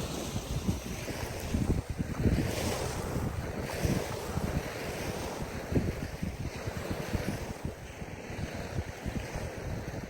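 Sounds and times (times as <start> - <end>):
sea surf hiss: 0.0 - 0.7
wind buffeting microphone: 0.0 - 10.0.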